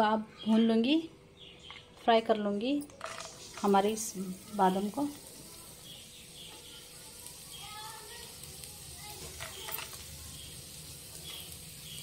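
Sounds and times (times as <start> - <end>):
almonds sizzling in a pan: 2.9 - 12.0.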